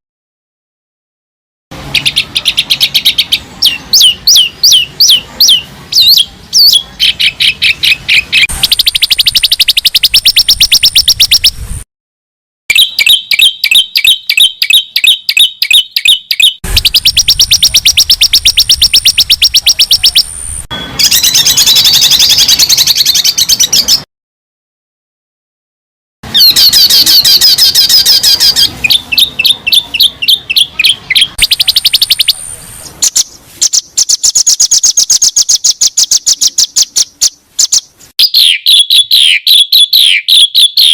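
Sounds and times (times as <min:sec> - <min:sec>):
songbird chirps and trills: 0:01.8 - 0:11.6, 0:12.7 - 0:24.0, 0:26.3 - 0:40.9.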